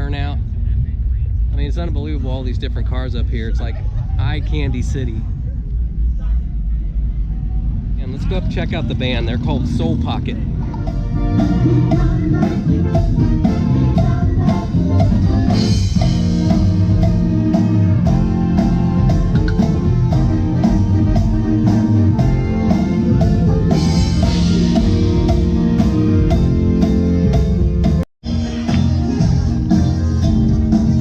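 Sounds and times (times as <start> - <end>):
drum kit: 8.0 - 31.0
guitar: 10.4 - 31.0
person singing: 10.6 - 15.8, 28.3 - 31.0.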